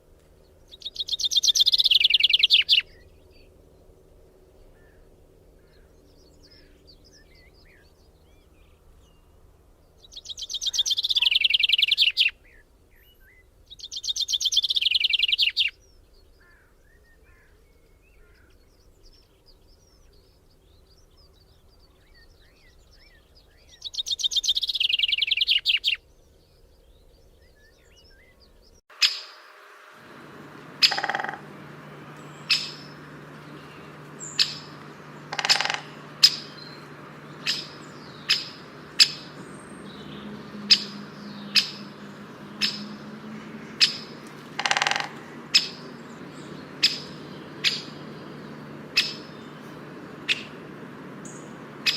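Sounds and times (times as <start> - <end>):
faint bird chirps: 10.0 - 51.9
low hum: 29.2 - 51.9
bird sharp short calls: 30.4 - 51.9
bird trills falling in pitch: 30.5 - 39.5, 43.8 - 45.9.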